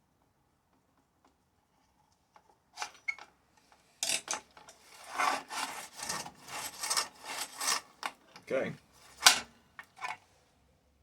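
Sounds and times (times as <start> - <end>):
metal scraping and rubbing: 4.9 - 8.0.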